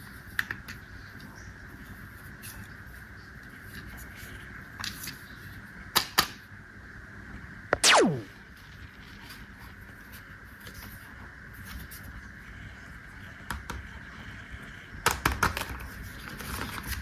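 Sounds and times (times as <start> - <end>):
sweep falling in pitch: 7.8 - 8.4.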